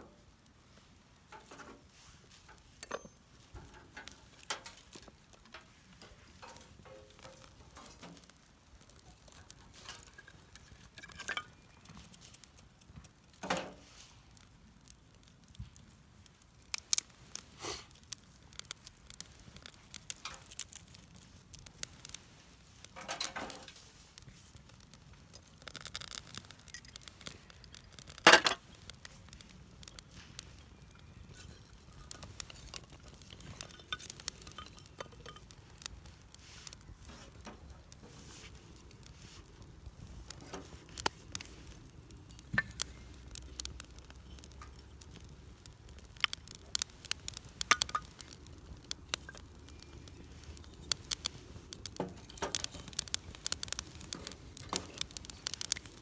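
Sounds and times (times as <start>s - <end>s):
hands handling wood and gear: 19.2s - 56.0s.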